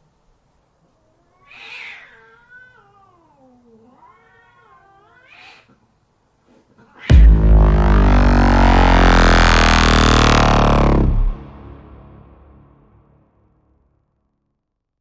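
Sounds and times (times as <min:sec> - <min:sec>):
cat meowing: 0:01.4 - 0:05.6.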